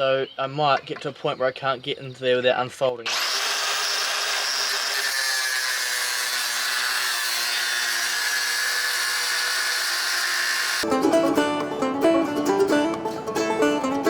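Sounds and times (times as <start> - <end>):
grinder cutting metal: 3.0 - 10.8.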